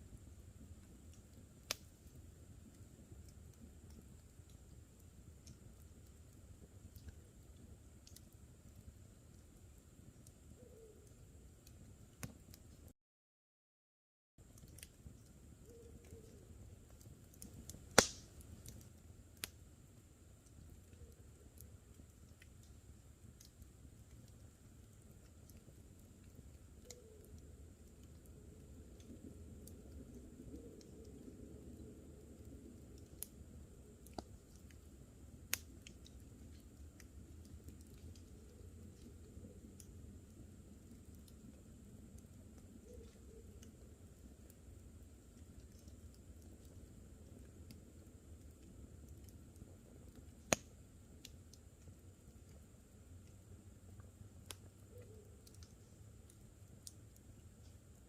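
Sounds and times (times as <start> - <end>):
campfire crackling: 0.0 - 12.9, 14.4 - 58.0
loud sharp pop of fire: 17.9 - 18.3.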